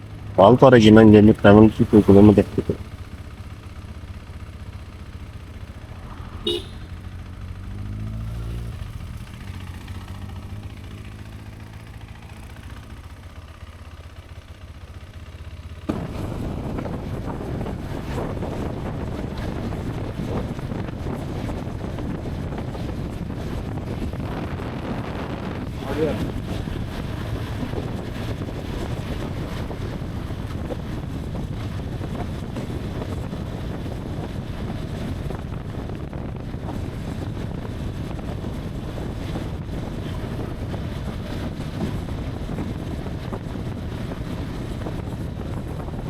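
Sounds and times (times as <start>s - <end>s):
motorcycle engine running: 0.0s - 46.0s
rush of wind: 0.0s - 46.0s
motorcycle horn toot: 6.4s - 7.0s.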